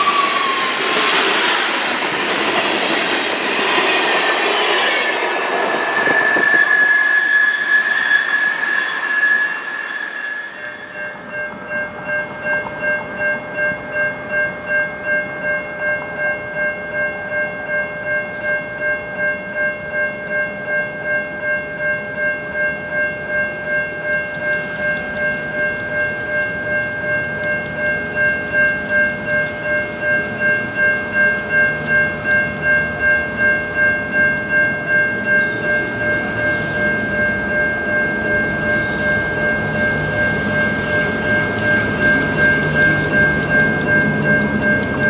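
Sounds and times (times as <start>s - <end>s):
freight train rumble: 0.0s - 9.1s, 24.0s - 45.0s
wheel squeal and rail noise: 0.0s - 16.2s, 34.8s - 45.0s
bell ringing steadily: 10.6s - 45.0s.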